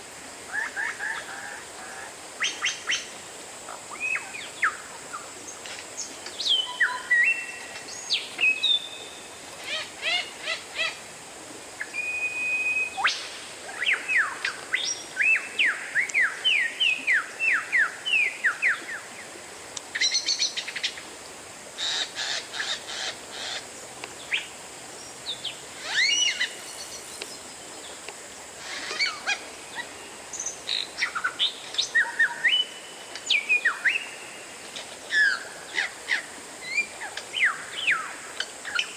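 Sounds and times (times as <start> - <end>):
bird singing whistled song: 6.4 - 9.2, 11.8 - 13.2, 31.8 - 34.2.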